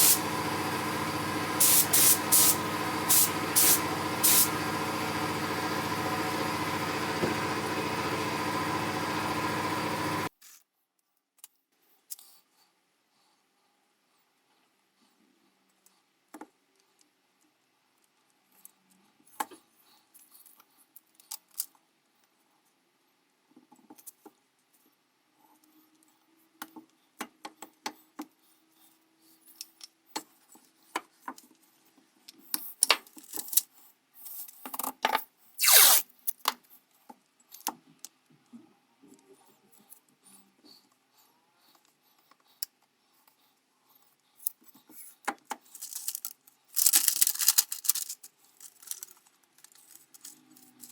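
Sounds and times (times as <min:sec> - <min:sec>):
small hard parts clicking: 0:45.7 - 0:50.9.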